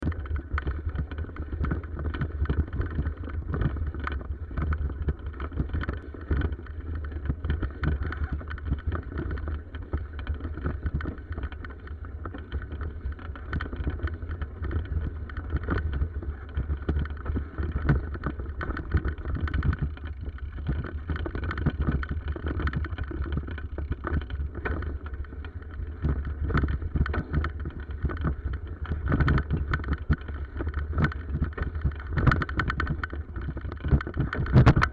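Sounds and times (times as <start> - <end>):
bicycle rattles and clicks: 0.0 - 34.9
wind rumble on microphone: 0.0 - 34.9.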